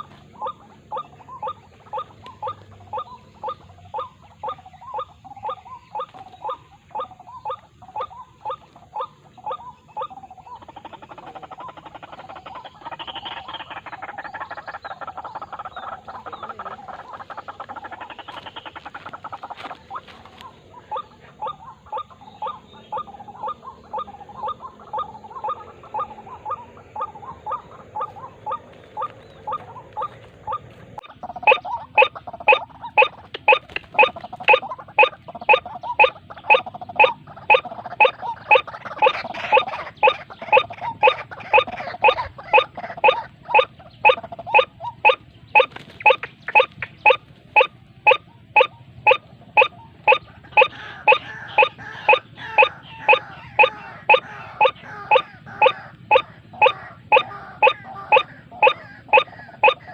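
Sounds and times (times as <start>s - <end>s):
waterhen calling: 0.0s - 59.9s.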